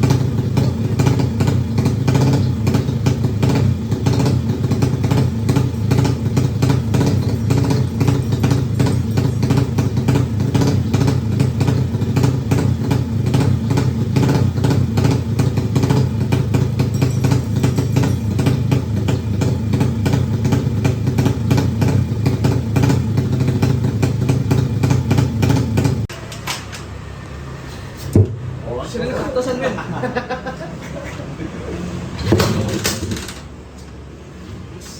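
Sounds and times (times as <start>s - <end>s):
motorcycle engine idling fast: 0.0s - 26.1s.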